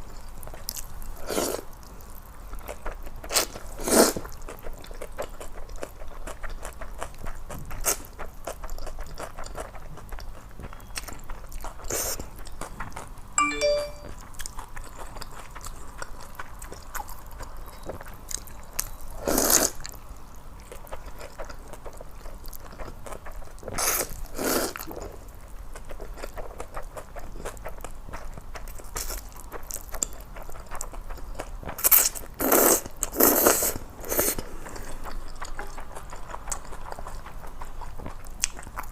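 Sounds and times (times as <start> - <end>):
wet chewing: 0.4 - 13.2, 20.6 - 38.9
chime-like ding: 13.4 - 14.1.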